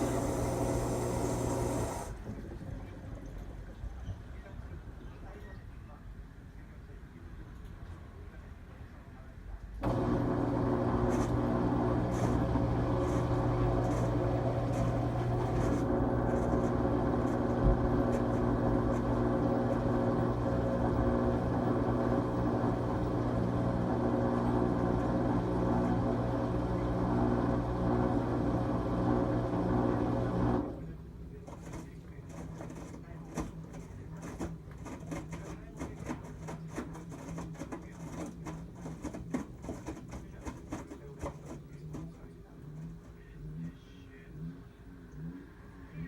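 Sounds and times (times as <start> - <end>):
washing machine motor hum: 0.0 - 2.8, 9.8 - 43.7.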